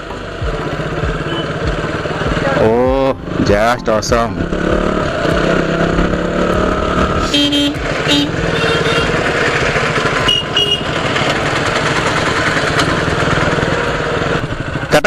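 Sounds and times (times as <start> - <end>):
motorcycle engine running: 0.0 - 15.0
short horn honks: 7.2 - 9.2, 10.1 - 11.0.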